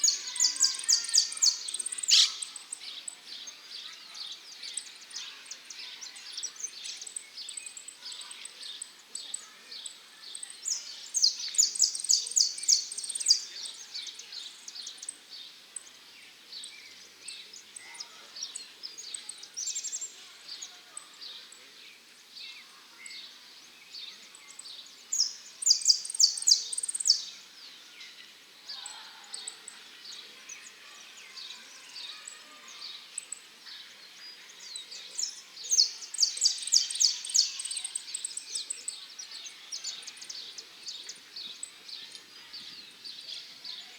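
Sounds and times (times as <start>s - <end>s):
finch singing high chirps: 0.0s - 2.9s, 25.1s - 27.3s, 34.6s - 43.9s.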